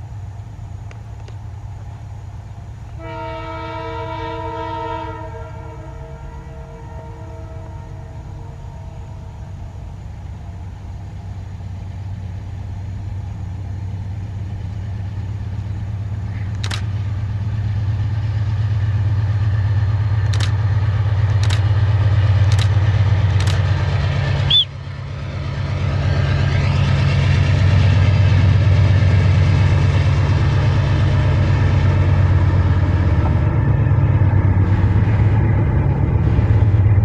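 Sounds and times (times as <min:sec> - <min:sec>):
diesel locomotive engine rumble: 0:00.0 - 0:37.0
sharp clicks: 0:16.5 - 0:16.9, 0:20.2 - 0:20.6, 0:21.2 - 0:21.7, 0:22.4 - 0:23.6.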